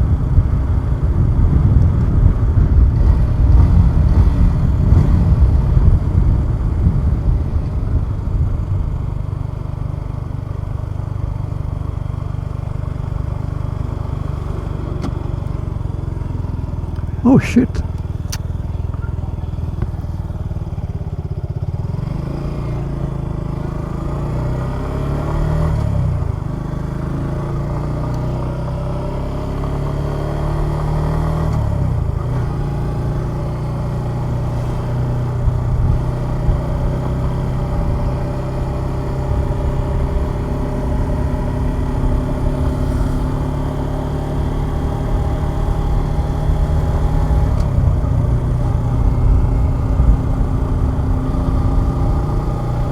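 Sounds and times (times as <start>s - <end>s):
motorcycle engine accelerating: 32.1s - 52.9s.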